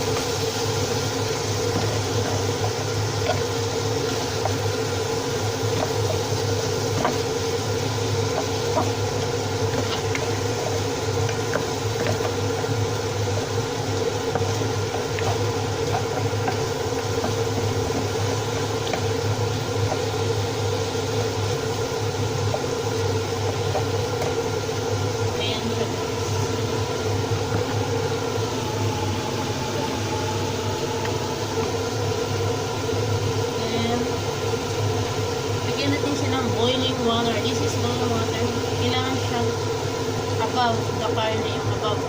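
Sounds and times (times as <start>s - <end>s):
utensil clicking in a pot: 0.0s - 25.2s
motor humming: 0.0s - 42.0s.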